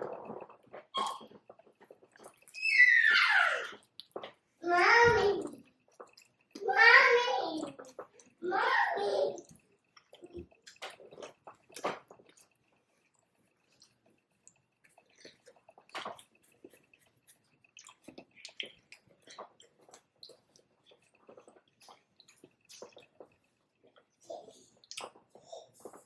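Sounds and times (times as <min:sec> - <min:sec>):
wet chewing mouth smacks: 0:09.5 - 0:24.0, 0:24.8 - 0:25.5.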